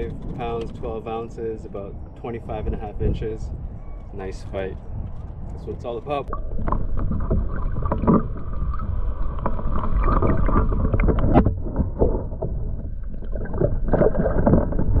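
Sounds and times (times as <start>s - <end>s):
low microphone rumble: 0.0s - 15.0s
water splashing against kayak: 6.2s - 15.0s.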